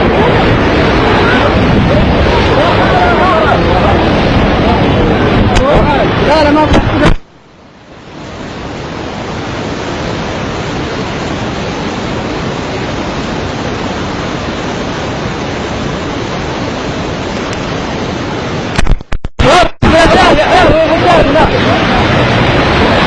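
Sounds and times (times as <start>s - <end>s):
floodwater rushing roar: 0.0s - 23.0s.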